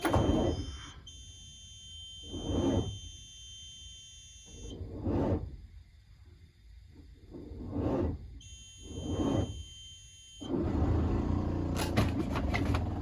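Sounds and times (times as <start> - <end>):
high-pitched electronic alarm tone: 0.0 - 4.8, 8.4 - 10.5.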